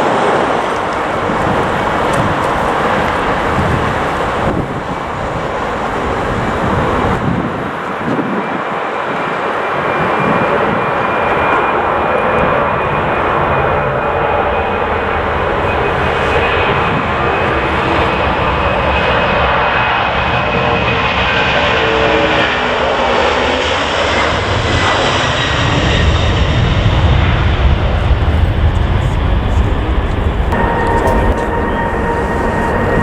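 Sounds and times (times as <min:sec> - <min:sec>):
jet engines running: 0:00.0 - 0:33.0
faint high whine: 0:29.0 - 0:33.0.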